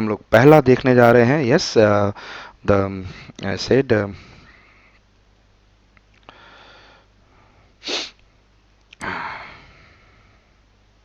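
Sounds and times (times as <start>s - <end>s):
man sneezing: 7.8s - 8.2s, 9.0s - 9.7s
man sniffing: 7.8s - 8.2s, 9.0s - 10.2s.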